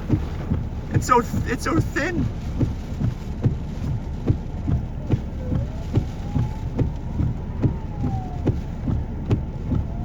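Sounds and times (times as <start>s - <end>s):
regular thumping: 0.0s - 10.0s.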